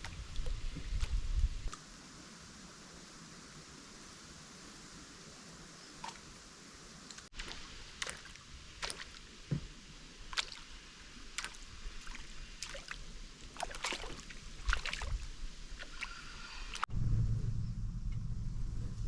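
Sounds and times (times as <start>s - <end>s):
paddle splashing water: 0.0s - 1.7s, 7.3s - 16.8s.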